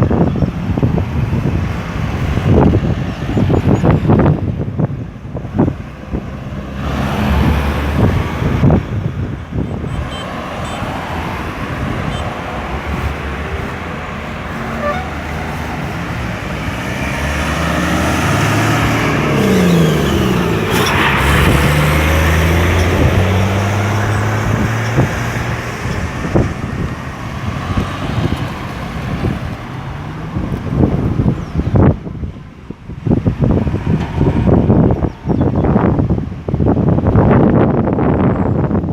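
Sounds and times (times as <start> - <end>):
cars driving past: 0.0 - 38.8
heavy vehicle passing: 5.5 - 31.3.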